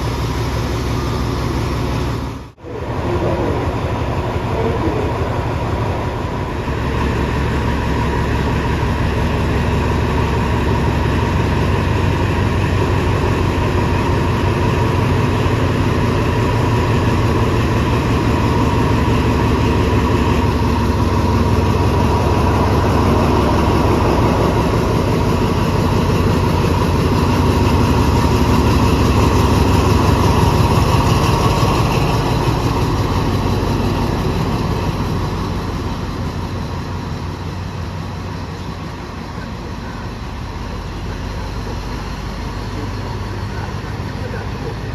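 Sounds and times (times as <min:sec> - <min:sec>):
diesel train engine rumbling: 0:00.0 - 0:44.9.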